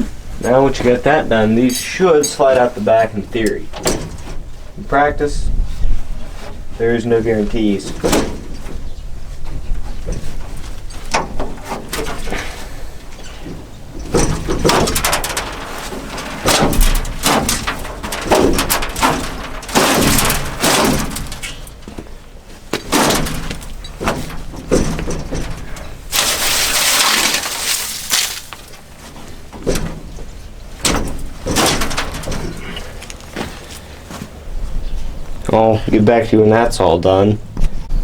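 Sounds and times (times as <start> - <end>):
metal sieves clanking and scraping: 14.0 - 21.9, 22.9 - 29.9.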